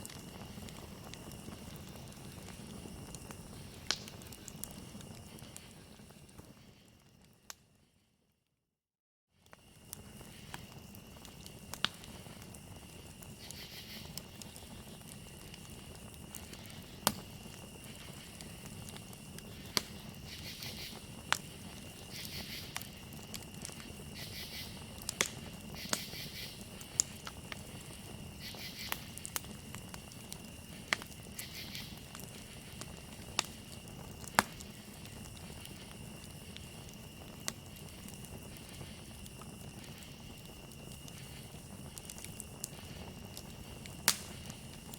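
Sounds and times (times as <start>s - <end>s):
cricket trill: 0.0s - 7.5s, 9.4s - 44.9s
campfire crackling and popping: 0.0s - 7.8s, 9.4s - 44.9s
higher insect call: 9.7s - 44.9s.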